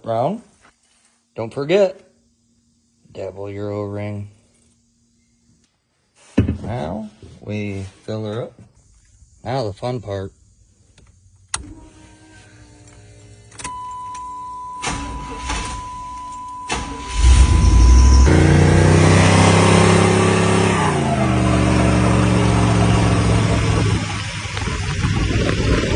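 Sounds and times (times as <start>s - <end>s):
ignition chime: 13.6s - 18.9s
truck engine starting and idling: 14.7s - 25.9s.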